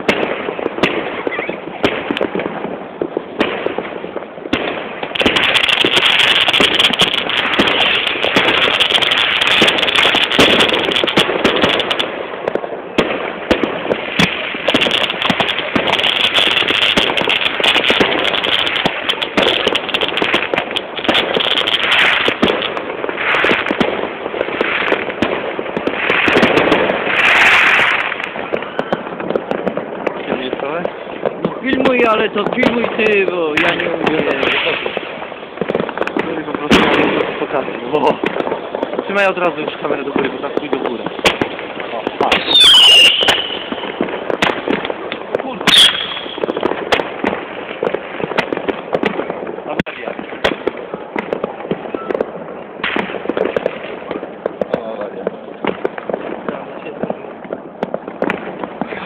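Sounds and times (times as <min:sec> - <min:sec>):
fireworks hissing burst: 0:00.0 - 0:57.2, 0:57.8 - 0:59.0
fireworks crackling and popping: 0:00.0 - 0:59.0.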